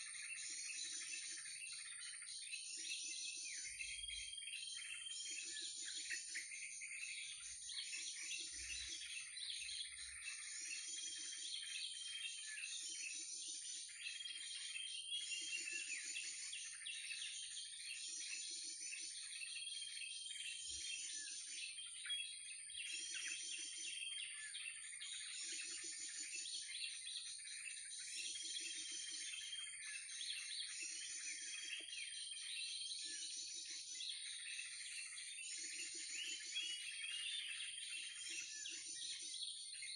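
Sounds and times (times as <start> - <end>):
recorded bird calls chirping: 0.0 - 39.9.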